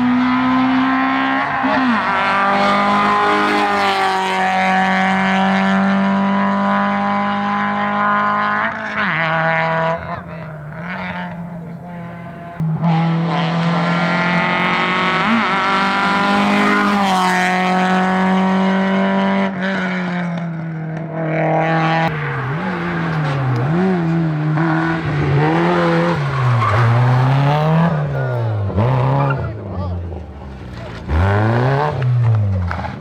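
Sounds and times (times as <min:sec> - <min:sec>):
race car engines revving high: 0:00.0 - 0:33.0
engine note rising and falling: 0:21.8 - 0:29.5.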